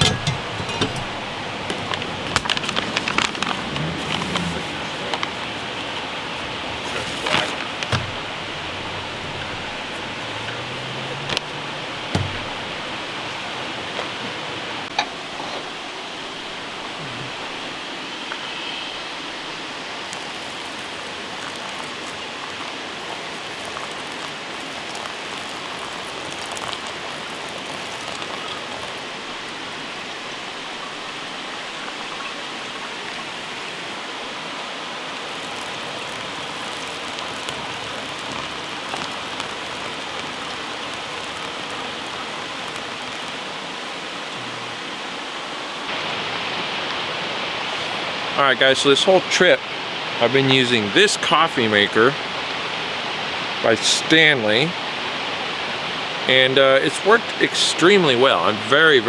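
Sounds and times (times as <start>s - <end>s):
steady rushing hiss: 0.0s - 59.0s.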